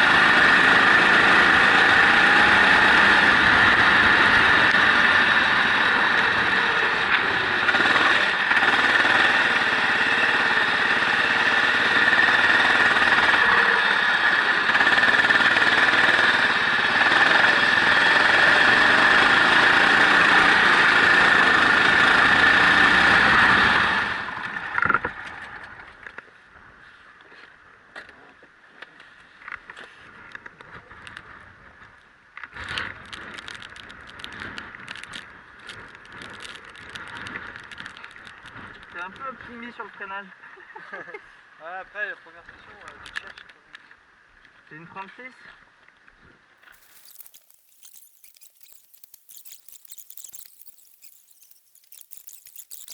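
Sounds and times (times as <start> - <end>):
faint irregular ticks: 32.4 - 39.4, 46.6 - 52.9.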